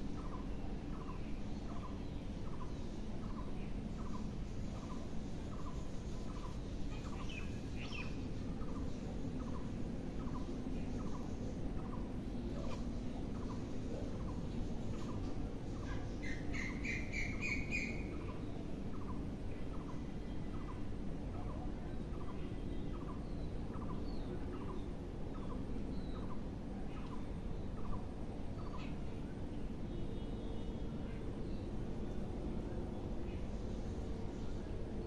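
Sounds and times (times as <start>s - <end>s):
steady background hiss: 0.0s - 35.0s
bird chirping: 0.1s - 20.8s.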